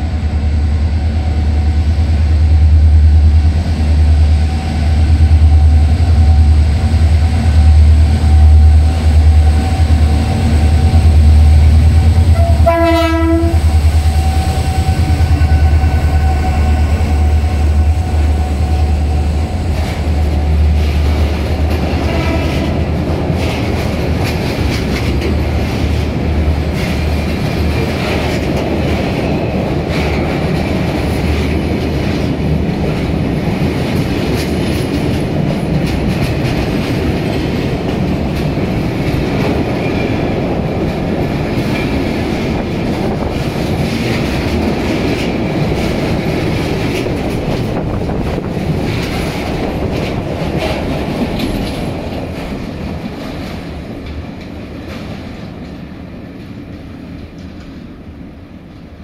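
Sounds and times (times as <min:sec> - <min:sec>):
wheels clacking over rail joints: 0:05.3 - 0:58.0.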